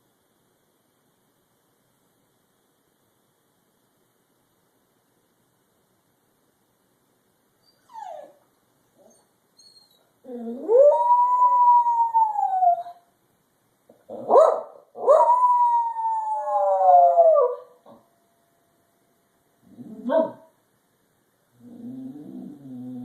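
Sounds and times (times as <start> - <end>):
dog yipping: 7.6 - 8.4, 9.0 - 10.1, 14.2 - 15.2
dog howling: 10.2 - 13.0, 14.3 - 17.7
dog barking: 14.2 - 15.3, 20.1 - 20.5.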